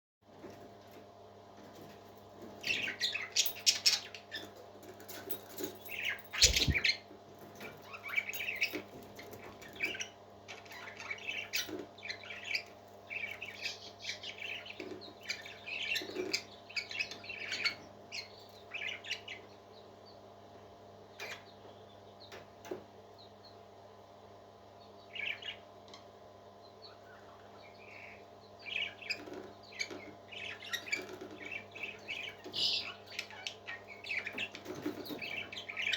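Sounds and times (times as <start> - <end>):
parrot chirping and squawking: 6.3 - 7.0.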